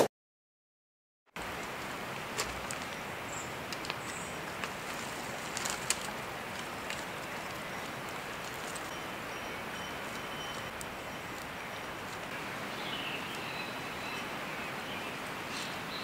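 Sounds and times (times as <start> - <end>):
steady hiss: 1.4 - 16.0
high bird chirps: 8.8 - 12.0.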